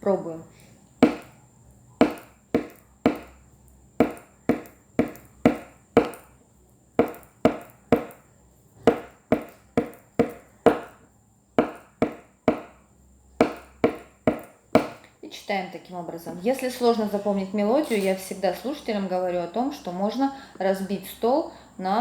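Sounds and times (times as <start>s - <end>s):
knocks tapped on a tabletop: 1.0s - 1.4s, 2.0s - 3.4s, 4.0s - 6.3s, 7.0s - 8.3s, 8.9s - 12.8s, 13.4s - 15.1s.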